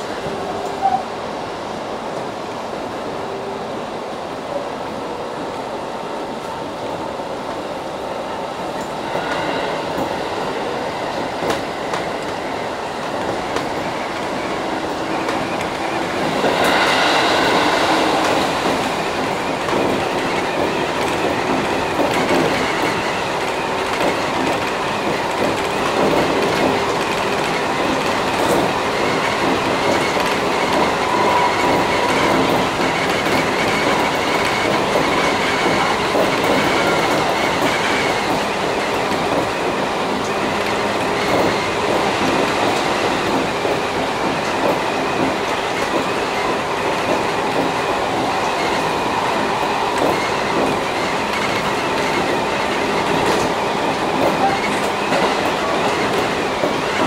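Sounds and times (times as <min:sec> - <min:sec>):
train wheels on rails: 0:00.0 - 0:57.0
rail-joint clatter: 0:50.0 - 0:57.0.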